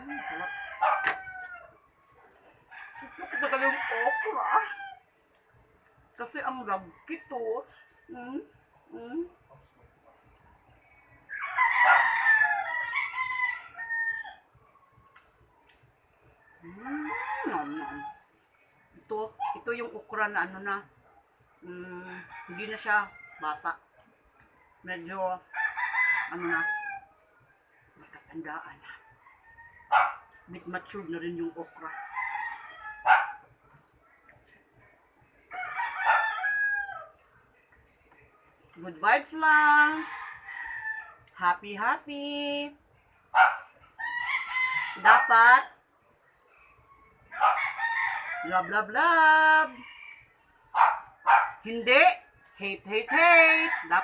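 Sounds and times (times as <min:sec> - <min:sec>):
rooster crowing: 0:00.0 - 0:01.9, 0:02.7 - 0:05.1, 0:11.2 - 0:14.5, 0:16.4 - 0:18.3, 0:22.2 - 0:23.6, 0:24.4 - 0:27.2, 0:28.9 - 0:30.4, 0:31.8 - 0:33.4, 0:35.5 - 0:37.2, 0:39.8 - 0:41.2, 0:43.4 - 0:45.6, 0:46.9 - 0:51.5, 0:53.1 - 0:54.0.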